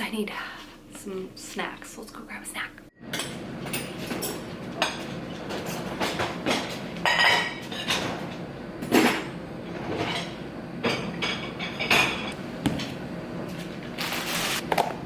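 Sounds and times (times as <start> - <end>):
dishes clinking and knocking: 3.1 - 13.0.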